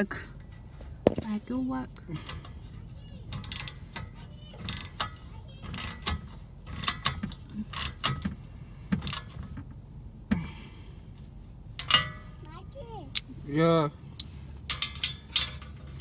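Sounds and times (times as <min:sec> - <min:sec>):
low steady rumble: 0:00.0 - 0:16.0
metal tools clinking: 0:02.0 - 0:08.3, 0:11.7 - 0:12.4, 0:13.1 - 0:16.0.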